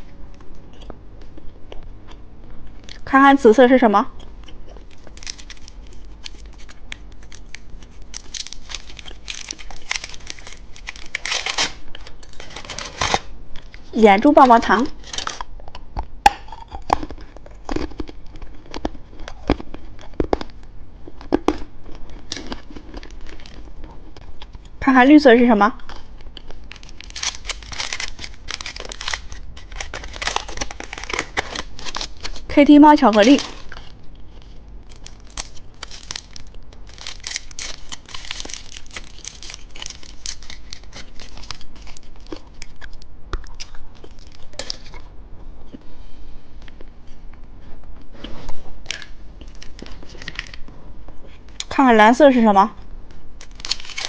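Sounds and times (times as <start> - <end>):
candy wrapper crinkling: 4.2 - 15.5, 16.6 - 24.5, 25.8 - 45.0, 48.9 - 50.6, 53.4 - 54.0
wrapper tearing: 4.8 - 13.7, 14.3 - 15.5, 25.8 - 45.0, 48.9 - 50.6, 53.4 - 54.0.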